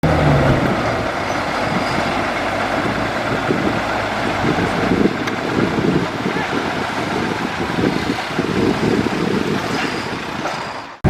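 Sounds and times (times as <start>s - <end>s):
bulldozer engine running: 0.0s - 11.0s.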